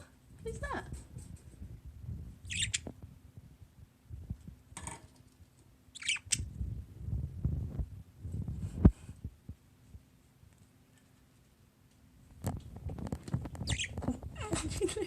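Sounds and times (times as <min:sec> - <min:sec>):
budgerigars chirping: 0:02.5 - 0:02.9, 0:05.9 - 0:06.5, 0:13.6 - 0:14.0.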